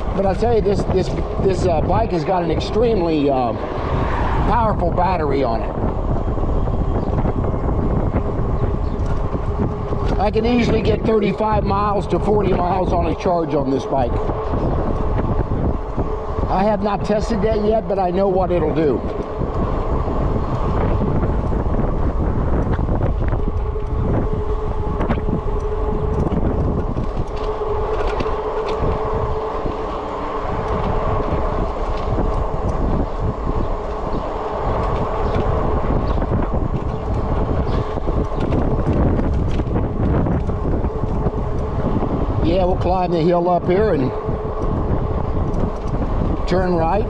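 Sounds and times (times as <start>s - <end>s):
bike road noise: 0.0s - 47.0s
steady hum: 0.0s - 47.0s
wind buffeting microphone: 0.0s - 47.0s.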